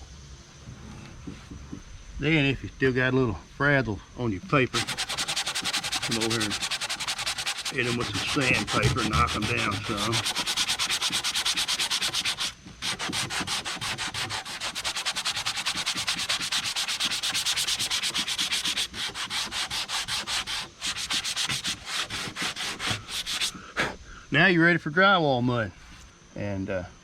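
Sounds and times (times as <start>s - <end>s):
sandpaper rubbing on paper edges: 4.7s - 23.6s.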